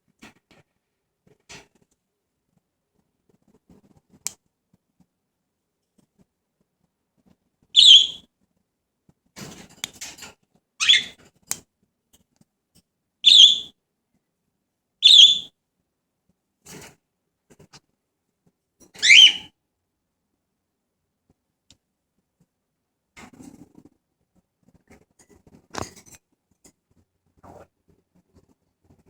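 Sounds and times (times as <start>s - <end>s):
parrot calling: 7.8s - 8.2s, 10.8s - 11.2s, 13.2s - 13.7s, 15.0s - 15.5s, 19.0s - 19.5s.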